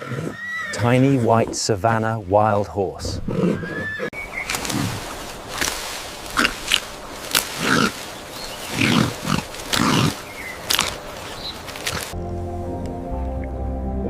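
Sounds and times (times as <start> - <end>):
animal grunting: 6.2 - 12.2.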